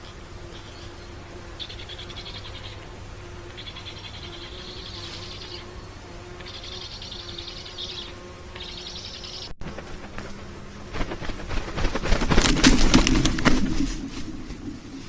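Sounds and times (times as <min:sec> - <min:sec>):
animal buzzing trill: 0:00.0 - 0:15.0
low steady hum: 0:09.6 - 0:15.0.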